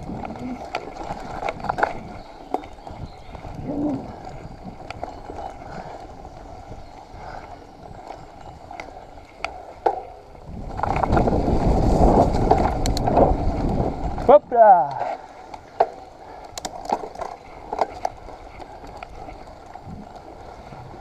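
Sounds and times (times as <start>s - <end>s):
bike clicks and rattles: 0.0s - 21.0s
bike rolling over muddy trail: 0.0s - 21.0s.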